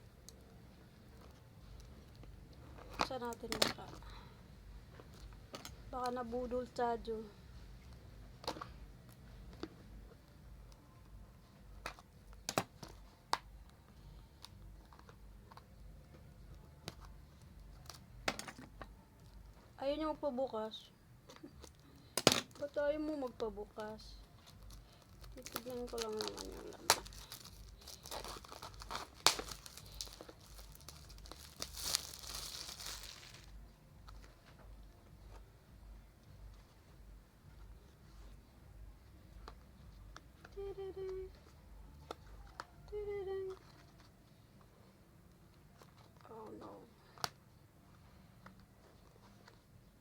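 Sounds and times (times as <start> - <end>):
packaging crinkling and tearing: 24.4 - 33.6.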